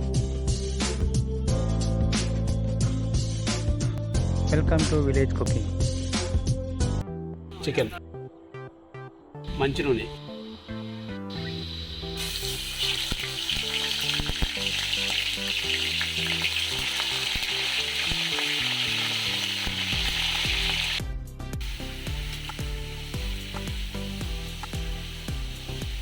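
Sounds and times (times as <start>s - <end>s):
chicken frying in oil: 11.3s - 21.0s, 21.6s - 26.0s.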